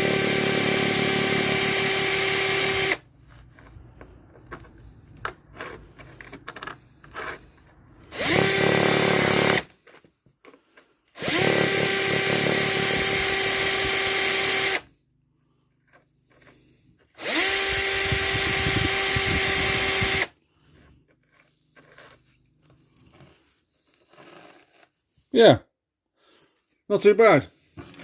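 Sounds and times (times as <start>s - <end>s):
electric drill whining: 0.0s - 3.0s, 8.0s - 9.7s, 11.2s - 14.9s, 17.2s - 20.3s.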